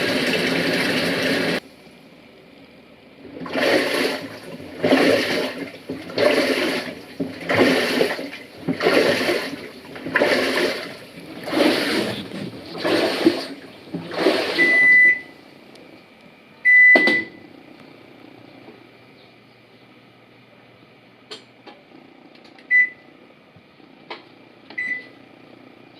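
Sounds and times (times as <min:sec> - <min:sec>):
washing machine agitating: 0:00.0 - 0:01.6, 0:03.2 - 0:15.4
water sloshing: 0:03.2 - 0:15.3.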